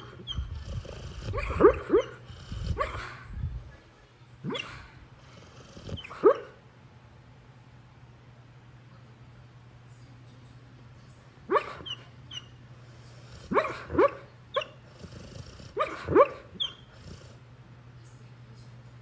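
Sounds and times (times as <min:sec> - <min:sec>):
dog woofing in sleep: 0:00.0 - 0:03.2, 0:04.5 - 0:06.6, 0:11.5 - 0:17.4
steady low hum: 0:00.0 - 0:19.0.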